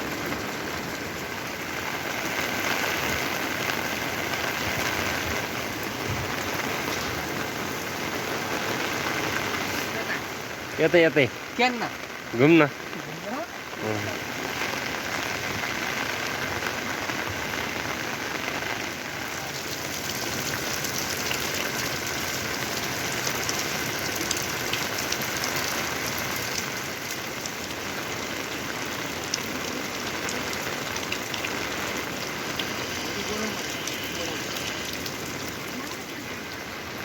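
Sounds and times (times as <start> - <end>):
heavy rain falling: 0.0 - 37.0
raindrops ticking: 0.0 - 37.0.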